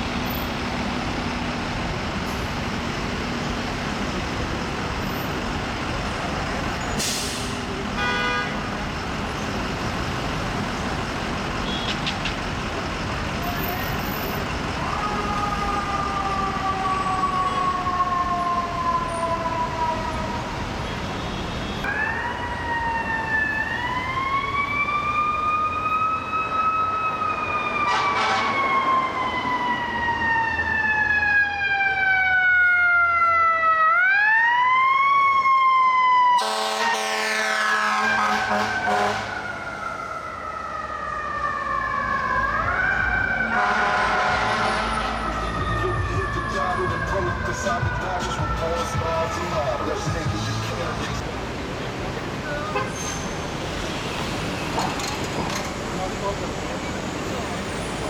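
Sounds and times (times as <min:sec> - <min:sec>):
traffic and engine noise: 0:00.0 - 0:58.0
air horn blast: 0:08.0 - 0:08.6, 0:27.9 - 0:28.6, 0:36.4 - 0:39.4, 0:43.5 - 0:45.2
fire truck siren wailing: 0:12.6 - 0:51.6, 0:52.2 - 0:58.0.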